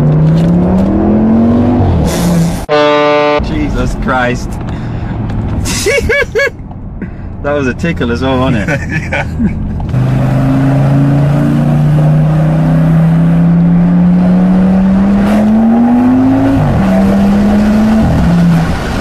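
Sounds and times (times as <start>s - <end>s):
car engine accelerating hard: 0.0s - 5.8s, 6.6s - 19.0s.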